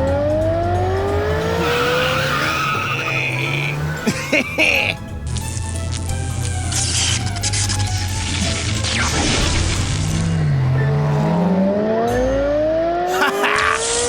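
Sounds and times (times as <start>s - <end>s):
cartoon background music: 0.0s - 14.0s.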